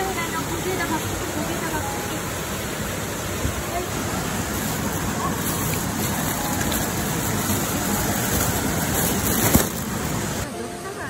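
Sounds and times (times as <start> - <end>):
heavy rain pouring: 0.0 - 10.6
plastic bag rustling: 3.8 - 10.4.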